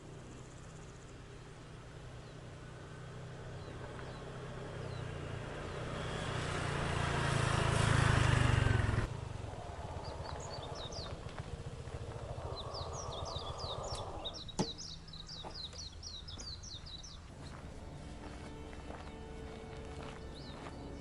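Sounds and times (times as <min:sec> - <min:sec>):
vehicle engine approaching: 0:00.0 - 0:21.0
bird chirps: 0:03.4 - 0:06.7, 0:09.5 - 0:21.0.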